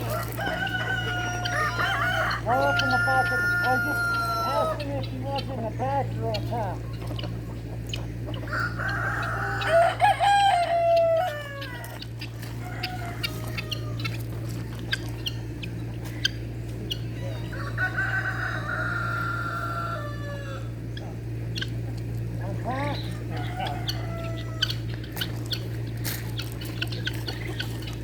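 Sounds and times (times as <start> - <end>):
rooster crowing: 0.0 - 4.9, 8.4 - 15.8, 17.0 - 20.9, 23.2 - 25.0.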